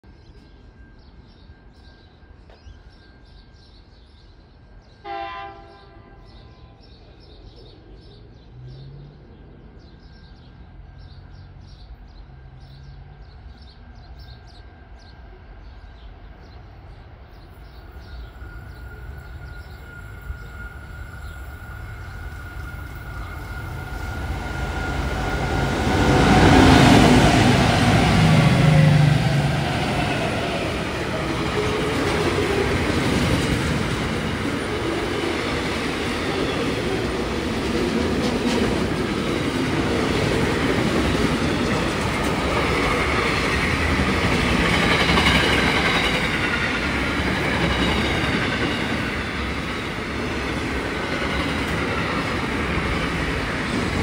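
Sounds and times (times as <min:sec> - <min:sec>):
train horn blast: 0:05.0 - 0:06.8
locomotive engine rumble: 0:20.1 - 0:48.6.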